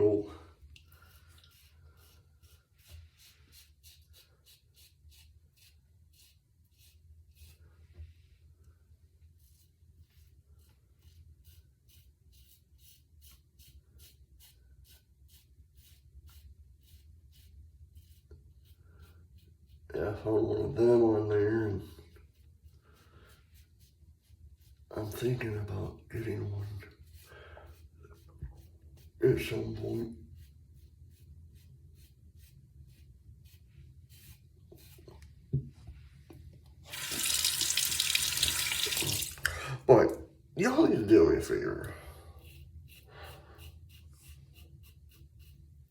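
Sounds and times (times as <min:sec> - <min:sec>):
shaving brush swishing lather: 0:00.0 - 0:07.7, 0:26.7 - 0:35.1, 0:36.8 - 0:39.5, 0:41.4 - 0:45.9
razor scratching against skin: 0:36.9 - 0:39.4, 0:42.4 - 0:45.6
faucet water running into sink: 0:36.9 - 0:39.5.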